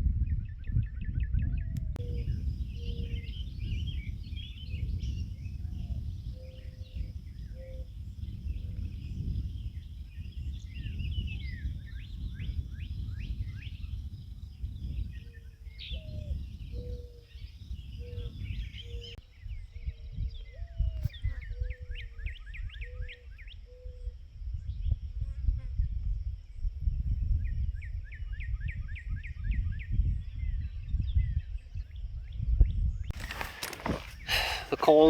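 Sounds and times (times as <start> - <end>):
low wind rumble: 0.0 - 21.0, 28.5 - 35.0
birds chirping: 33.1 - 35.0.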